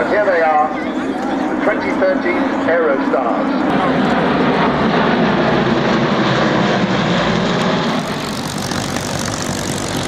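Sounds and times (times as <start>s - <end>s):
propeller planes flying by: 0.0s - 10.0s.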